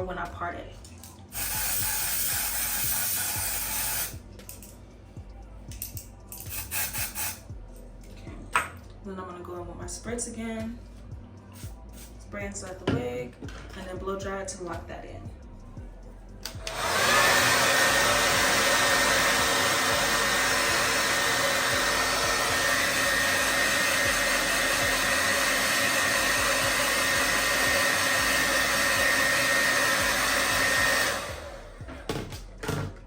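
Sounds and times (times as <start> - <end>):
hair dryer blowing: 1.4 - 4.2, 16.5 - 32.1.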